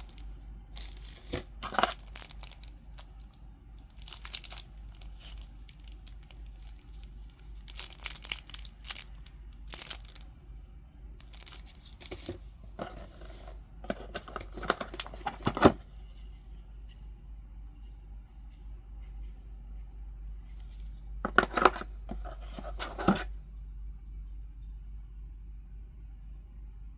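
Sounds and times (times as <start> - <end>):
packaging crinkling and tearing: 0.0 - 0.2, 0.8 - 10.3, 11.2 - 12.3.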